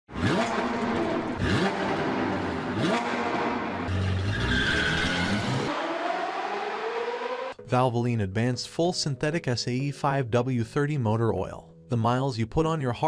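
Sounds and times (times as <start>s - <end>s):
car engines revving: 0.1s - 7.6s
tire squeal: 3.8s - 7.5s.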